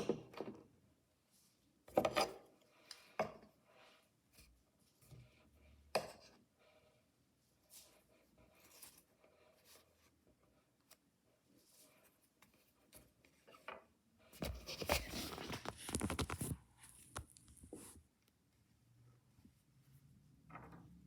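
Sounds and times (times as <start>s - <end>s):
packaging rustling: 14.4s - 17.7s
packaging crinkling and tearing: 14.9s - 17.6s.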